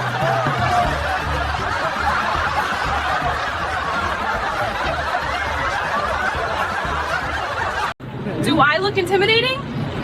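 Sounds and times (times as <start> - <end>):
people laughing and chuckling: 0.0 - 8.0.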